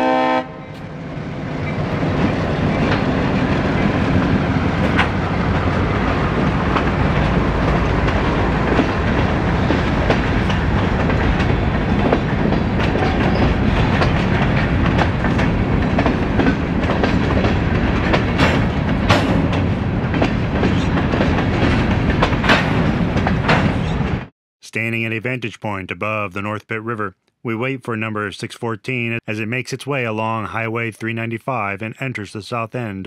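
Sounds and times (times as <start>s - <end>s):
steel wheels rumbling on rail: 0.0s - 24.3s
wheels clacking over rail joints: 1.6s - 24.3s.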